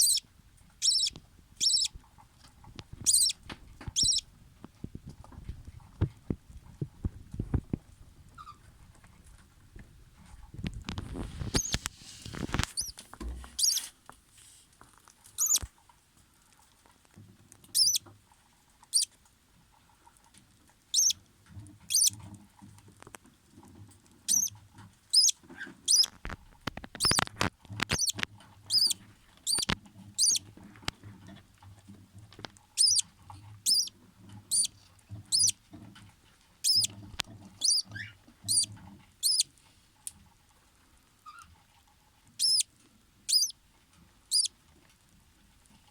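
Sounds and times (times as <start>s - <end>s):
bird chicks peeping: 0.0s - 4.3s, 11.4s - 11.8s, 12.7s - 13.0s, 13.6s - 13.9s, 15.4s - 15.7s, 17.7s - 18.0s, 20.9s - 21.2s, 21.9s - 22.2s, 24.3s - 26.2s, 27.0s - 30.5s, 32.7s - 35.6s, 36.6s - 39.5s, 42.4s - 42.7s, 43.3s - 43.6s, 44.3s - 44.5s.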